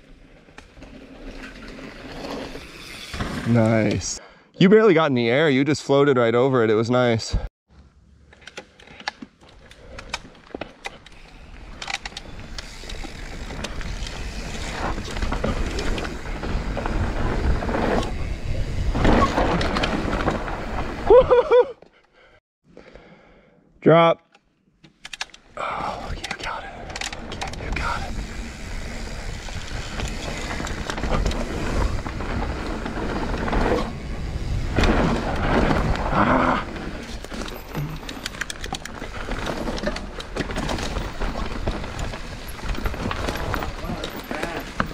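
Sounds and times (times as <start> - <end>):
bike tyre and wind noise: 0.0 - 4.2, 9.3 - 21.6, 25.4 - 44.9
bike clicks and rattles: 8.2 - 21.1, 24.8 - 25.5, 26.1 - 44.9.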